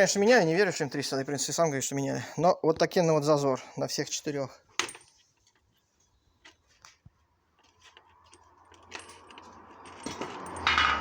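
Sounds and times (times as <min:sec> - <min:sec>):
rustling: 0:04.9 - 0:10.6.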